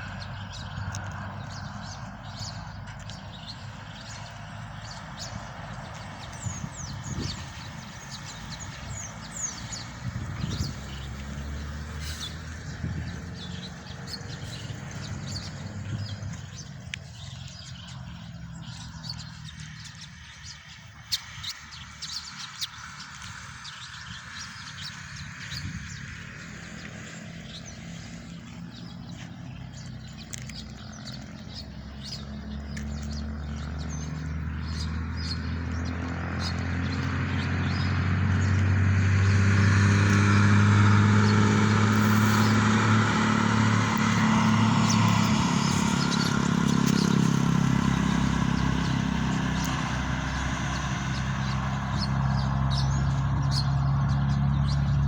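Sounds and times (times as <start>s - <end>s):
motor engine humming: 0.0s - 20.8s, 21.6s - 55.0s
birds chirping: 0.0s - 55.0s.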